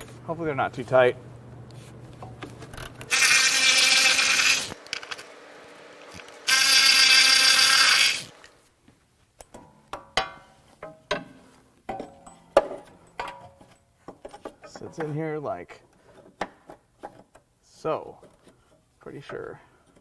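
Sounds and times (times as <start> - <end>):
power tool loosening bolts: 2.7 - 8.6.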